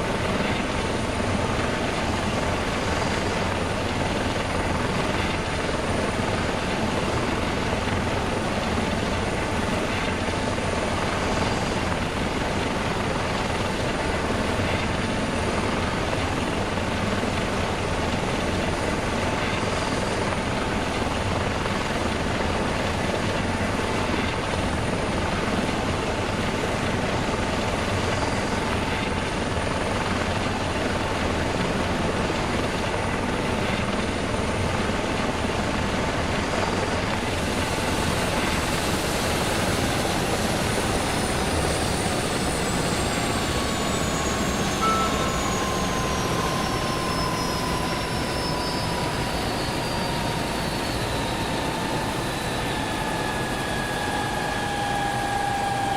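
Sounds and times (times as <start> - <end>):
helicopter turbine and rotor noise: 0.0 - 55.9
turbine whine falling in pitch: 37.2 - 55.9.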